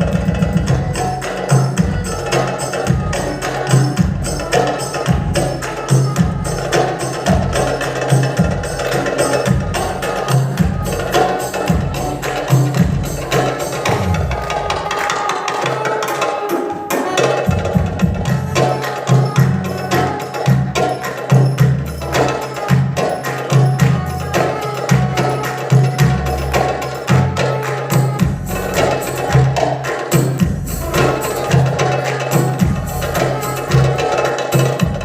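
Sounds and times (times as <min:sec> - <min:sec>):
backing track: 0:00.0 - 0:35.0
tabla strokes: 0:00.0 - 0:35.0.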